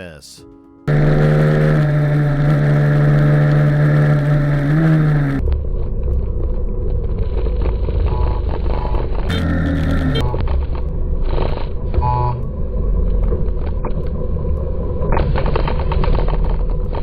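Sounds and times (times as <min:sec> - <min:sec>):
motorcycle engine high revs: 0:00.9 - 0:05.4
low rough rumble: 0:00.9 - 0:17.0.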